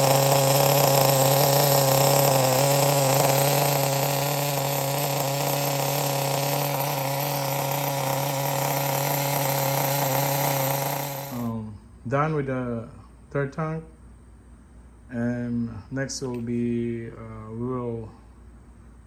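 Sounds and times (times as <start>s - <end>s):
small nitro engine running: 0.0s - 11.6s.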